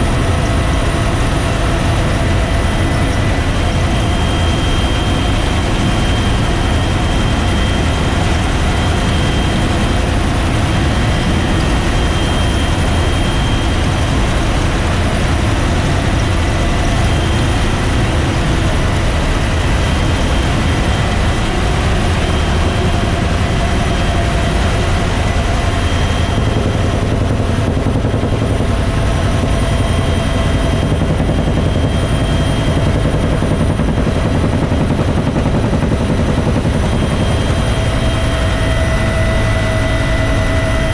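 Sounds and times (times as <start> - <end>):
helicopter rotor deep rumble: 0.0 - 40.9
high turbine whine: 0.0 - 40.9.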